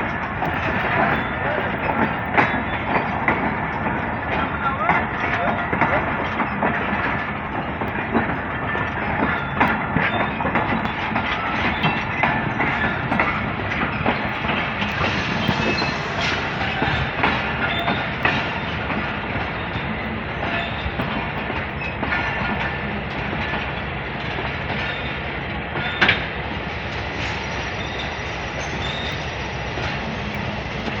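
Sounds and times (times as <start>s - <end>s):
freight train rumble: 0.0s - 31.0s
train wheels clacking over rail joints: 0.0s - 31.0s
faint wheel squeal: 15.0s - 18.7s, 27.3s - 29.3s.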